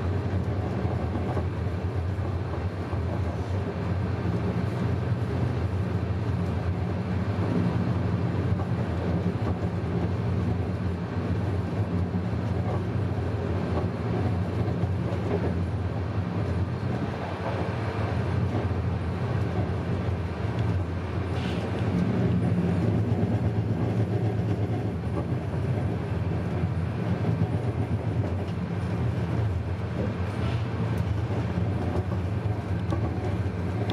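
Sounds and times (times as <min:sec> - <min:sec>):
train rumbling on rails: 0:00.0 - 0:33.9.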